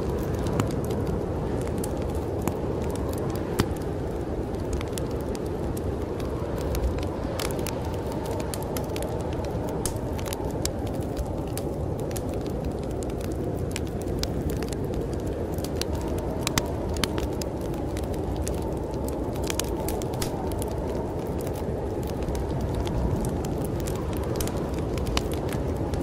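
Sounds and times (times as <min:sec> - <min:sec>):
sharp fire pops: 0:00.0 - 0:26.0
storm wind rushing: 0:00.0 - 0:26.0
wood fire crackling: 0:00.0 - 0:26.0.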